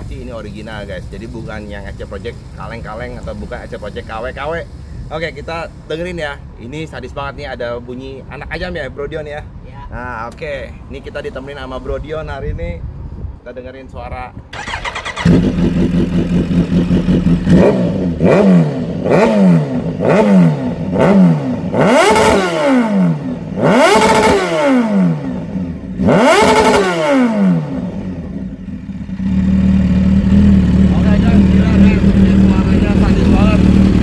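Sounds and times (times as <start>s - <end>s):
motorcycle engine idling and revving: 0.0s - 7.1s, 14.5s - 34.0s.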